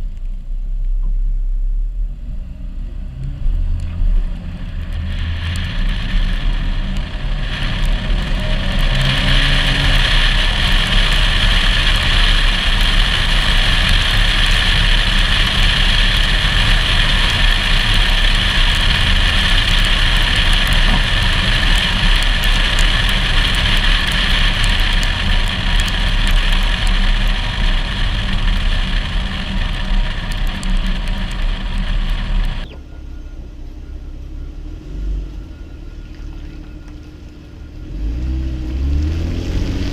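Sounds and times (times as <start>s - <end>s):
car engine and tyre rumble: 0.0s - 39.9s
wind rushing over camera: 2.7s - 32.7s.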